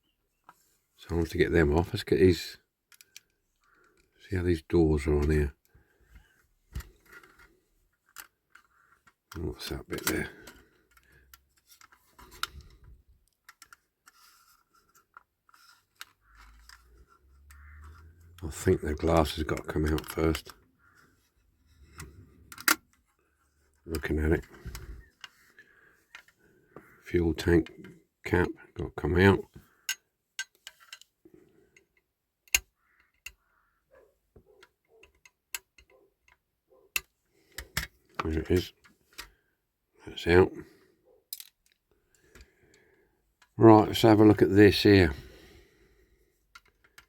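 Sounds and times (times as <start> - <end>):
small parts clicking: 2.9 - 4.2, 6.7 - 26.4, 29.7 - 33.6, 41.3 - 42.8, 46.4 - 47.0
handling rustle: 5.0 - 28.0
light scraping of parts: 6.1 - 28.4, 29.2 - 33.4.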